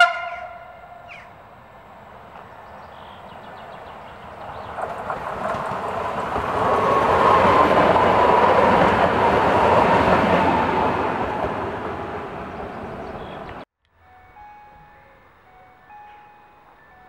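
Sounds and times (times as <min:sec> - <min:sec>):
train wheels rushing on rail: 0:00.0 - 0:13.6
faint train whine: 0:00.0 - 0:17.0.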